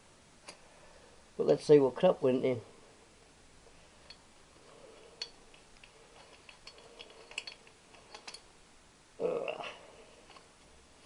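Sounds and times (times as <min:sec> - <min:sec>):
metal clatter: 0:04.0 - 0:08.5
hand tools clicking on metal: 0:05.0 - 0:08.5.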